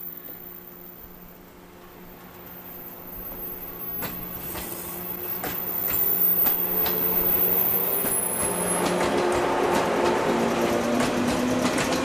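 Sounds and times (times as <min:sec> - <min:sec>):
steady train hum: 0:00.0 - 0:12.0
wheels clacking over rail joints: 0:03.1 - 0:12.0.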